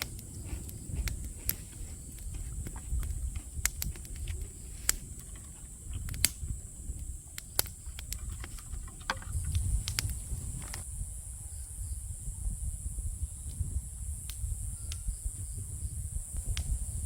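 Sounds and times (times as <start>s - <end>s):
light clicks: 0.0s - 10.8s
insect chirring: 0.0s - 17.0s.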